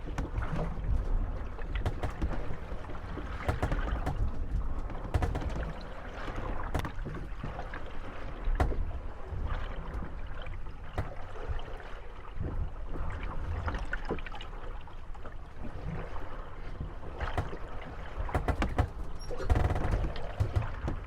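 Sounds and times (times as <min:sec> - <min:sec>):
wooden boats knocking together: 0:00.0 - 0:12.6, 0:16.8 - 0:21.0
water lapping at hulls: 0:00.0 - 0:21.0
wood creak: 0:01.6 - 0:07.9, 0:17.2 - 0:21.0.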